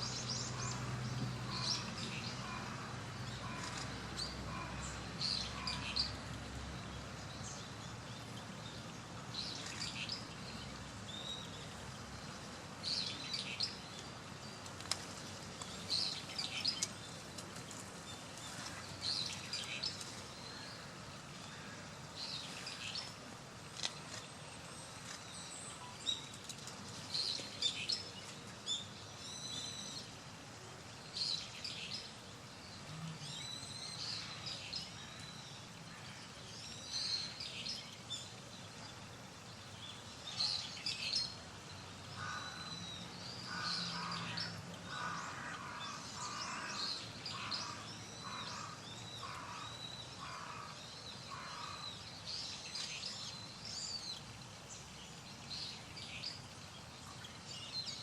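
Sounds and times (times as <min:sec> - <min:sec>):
outdoor background noise: 0:00.0 - 0:58.0
songbirds chirping: 0:00.0 - 0:58.0.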